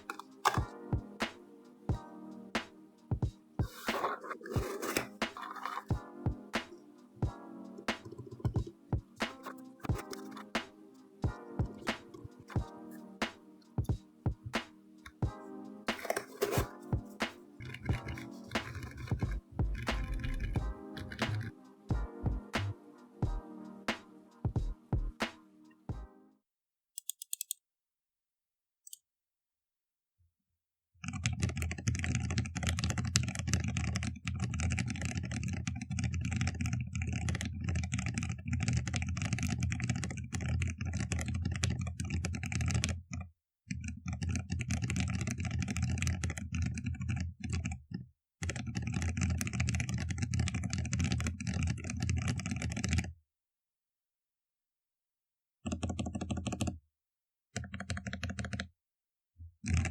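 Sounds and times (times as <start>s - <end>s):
fast typing on mechanical keyboard: 17.6s - 21.5s, 31.0s - 43.0s, 43.7s - 47.8s, 48.4s - 53.1s, 55.7s - 56.7s, 57.6s - 58.7s, 59.7s - 59.9s.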